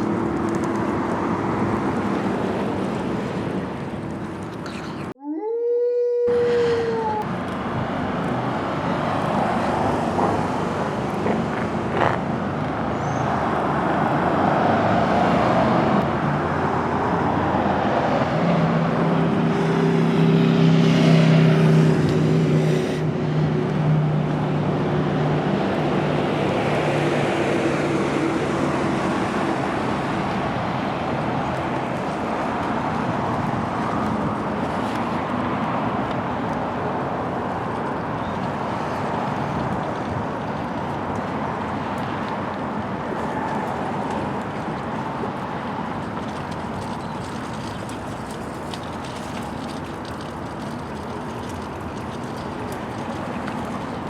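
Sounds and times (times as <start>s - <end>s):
heavy vehicle engine hum: 0.0s - 5.2s
cars passing: 0.0s - 54.0s.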